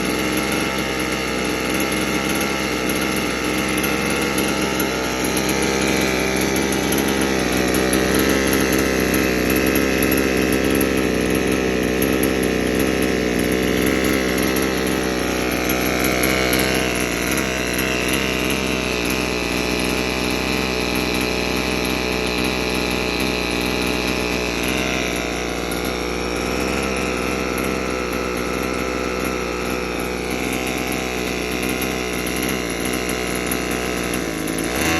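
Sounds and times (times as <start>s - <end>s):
small model engine running: 0.0s - 34.9s.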